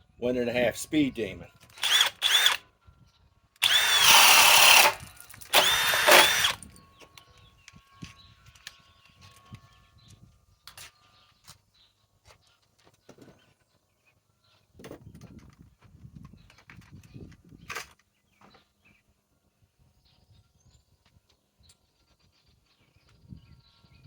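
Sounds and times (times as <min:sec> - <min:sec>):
cordless drill boring: 0:01.7 - 0:02.6, 0:03.6 - 0:06.8.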